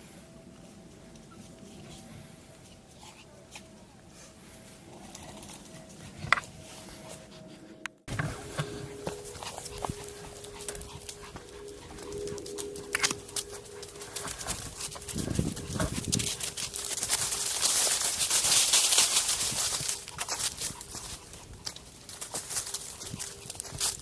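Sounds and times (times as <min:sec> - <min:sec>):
small dog sounds: 0:08.6 - 0:17.2.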